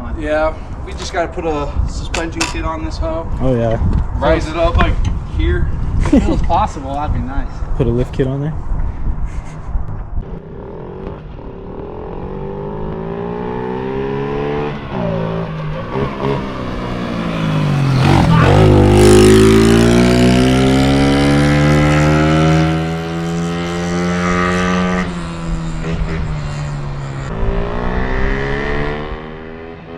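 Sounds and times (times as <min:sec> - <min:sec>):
small bike engine revving: 0:10.2 - 0:29.9.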